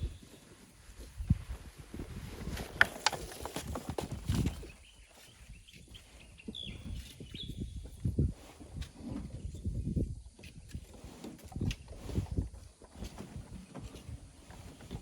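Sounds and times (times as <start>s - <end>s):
shovels scraping sand and stones: 2.2s - 4.5s.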